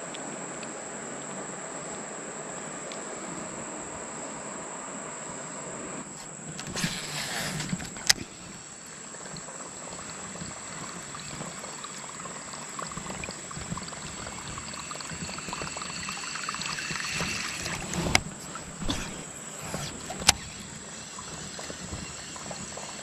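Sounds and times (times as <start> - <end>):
creek water trickling: 6.1 - 23.0
small ticks: 6.2 - 23.0.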